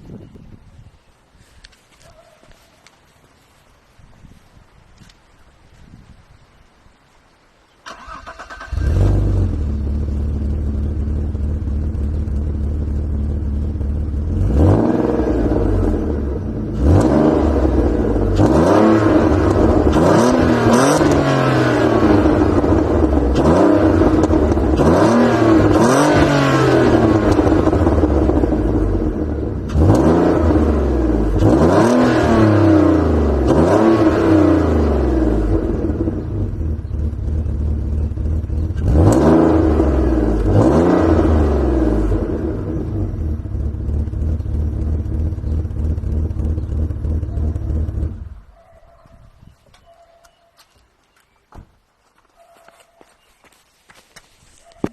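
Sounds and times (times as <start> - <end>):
car engine starting and idling: 7.8 - 48.6
engine revving in throttle blips: 7.9 - 48.6.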